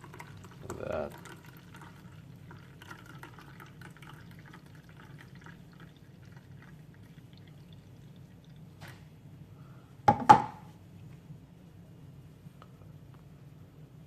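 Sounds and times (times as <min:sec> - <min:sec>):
juice trickling and dripping: 0:00.0 - 0:09.2
steady low hum: 0:00.0 - 0:14.0.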